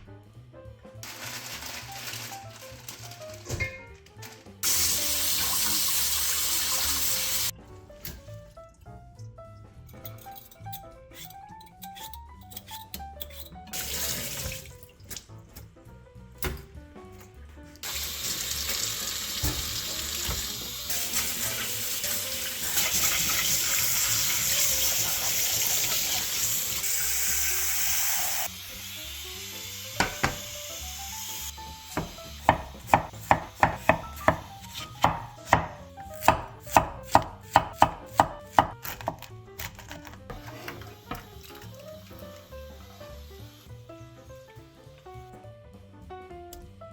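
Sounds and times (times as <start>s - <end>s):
tap water running into sink: 4.6s - 7.5s, 13.8s - 15.3s, 17.8s - 28.5s, 29.3s - 34.5s, 40.7s - 43.5s
knife chopping on cutting board: 32.0s - 40.0s.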